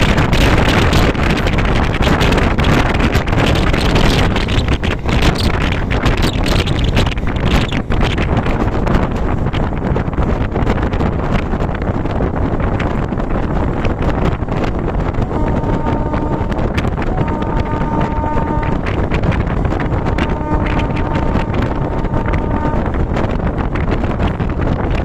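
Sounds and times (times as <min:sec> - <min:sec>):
train rumble: 0:00.0 - 0:25.0
wind buffeting microphone: 0:00.0 - 0:25.0
train horn blasts: 0:15.0 - 0:23.5.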